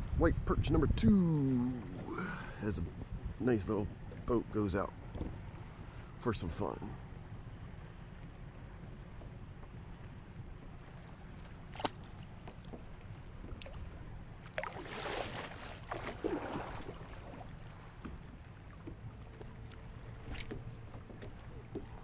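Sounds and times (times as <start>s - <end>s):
wind rumble on microphone: 0.0s - 22.0s
water splashing against kayak: 9.2s - 22.0s.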